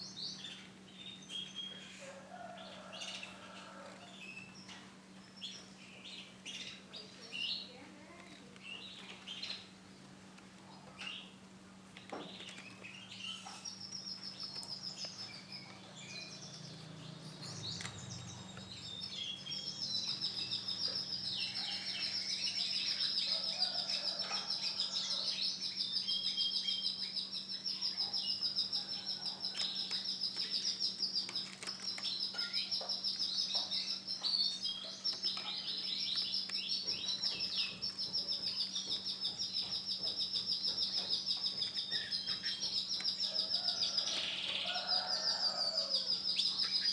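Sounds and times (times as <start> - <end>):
canary singing trills: 12.5 - 46.9.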